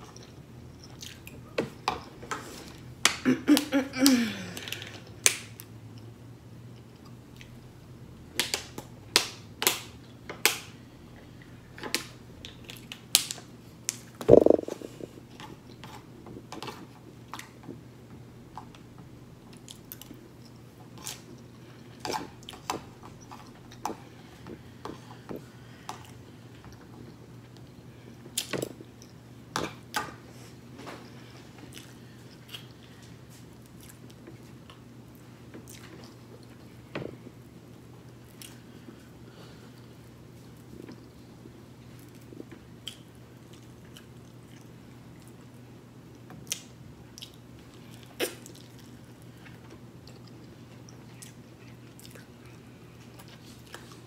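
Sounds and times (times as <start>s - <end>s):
person chewing: 14.3s - 15.4s, 47.2s - 54.0s.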